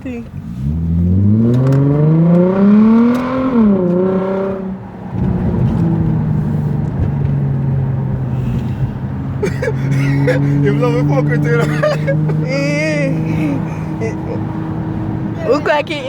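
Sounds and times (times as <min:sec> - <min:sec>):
car engine idling: 0:00.0 - 0:16.0
car engine revving: 0:00.0 - 0:16.0.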